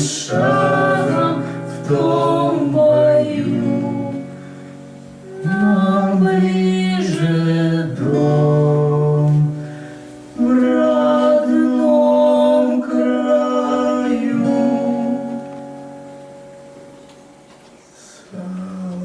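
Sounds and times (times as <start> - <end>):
song with instrumental accompaniment: 0.0 - 11.4.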